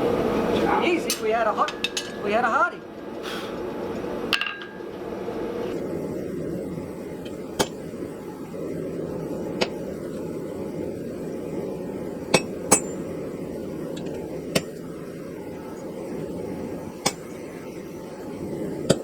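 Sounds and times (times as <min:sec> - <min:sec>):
low background noise: 0:00.0 - 0:18.9
hammer striking steel on anvil: 0:01.1 - 0:02.4, 0:04.3 - 0:04.9.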